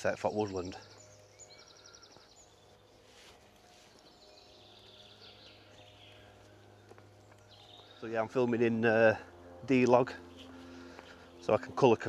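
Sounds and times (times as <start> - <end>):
distant birdsong trills: 0.0 - 12.0
low steady hum: 0.0 - 12.0.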